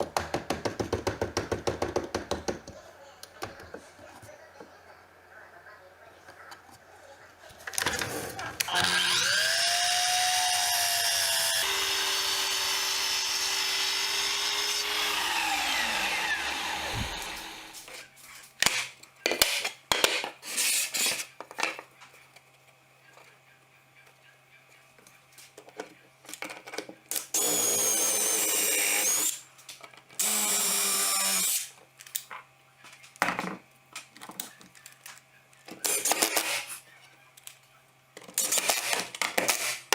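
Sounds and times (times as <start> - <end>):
power tool motor running: 8.7 - 17.9, 27.4 - 29.4.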